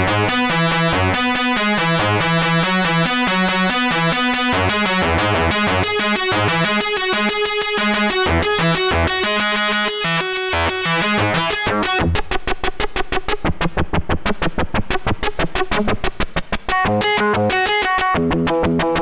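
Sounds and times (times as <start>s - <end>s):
synthesizer bass line: 0.0s - 12.2s
buzzy synthesizer notes: 0.0s - 12.3s.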